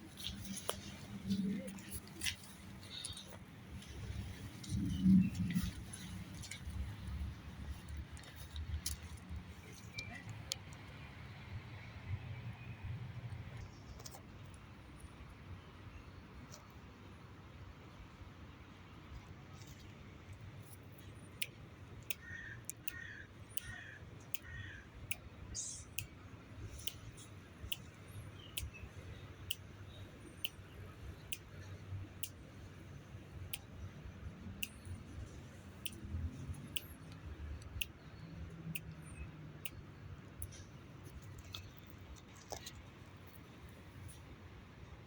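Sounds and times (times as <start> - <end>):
bird chirps: 25.5 - 31.8.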